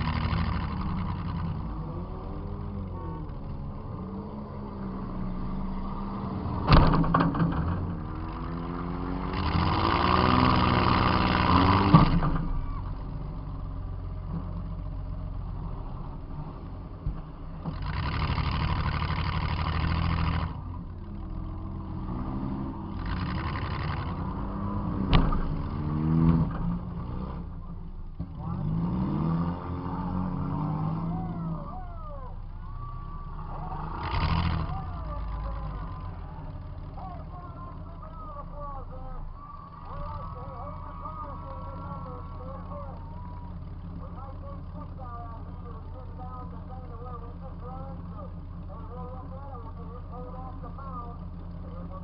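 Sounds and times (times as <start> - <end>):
car engine revving: 0.0 - 52.0.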